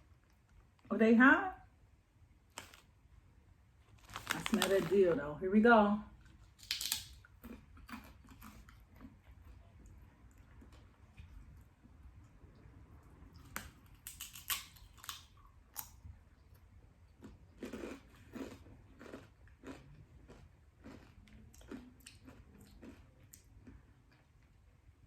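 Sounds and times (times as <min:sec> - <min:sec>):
potato chips crunching: 0:03.9 - 0:05.2, 0:06.4 - 0:09.1, 0:13.5 - 0:16.0, 0:17.2 - 0:23.8
chewing: 0:06.2 - 0:12.4, 0:17.2 - 0:24.4.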